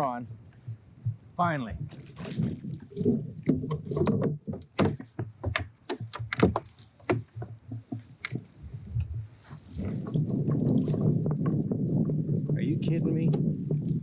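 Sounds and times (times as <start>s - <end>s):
fishing gear knocking on kayak hull: 1.8s - 8.6s.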